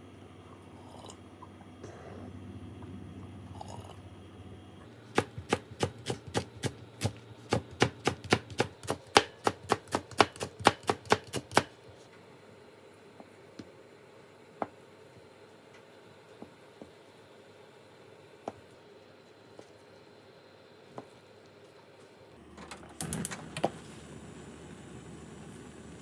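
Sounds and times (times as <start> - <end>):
knife chopping on cutting board: 5.1 - 11.8.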